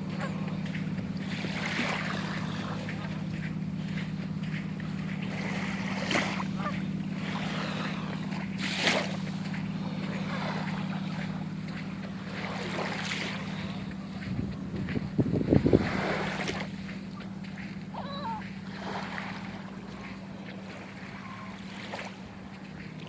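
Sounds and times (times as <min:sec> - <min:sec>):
steady low hum: 0:00.0 - 0:23.0
wind noise on microphone: 0:14.2 - 0:16.4.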